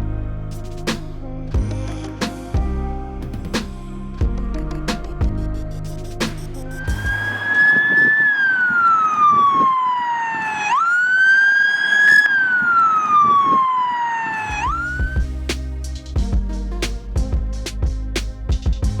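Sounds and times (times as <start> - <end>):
police siren wailing: 6.8 - 15.2.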